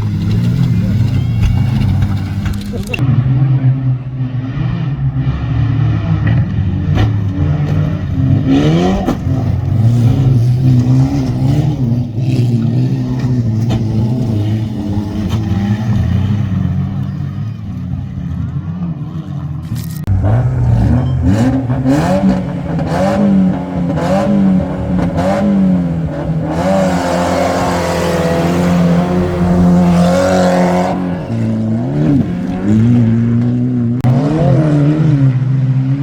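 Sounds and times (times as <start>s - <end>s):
rally car engine revving: 0.0s - 36.0s
rushing noise: 20.1s - 33.2s.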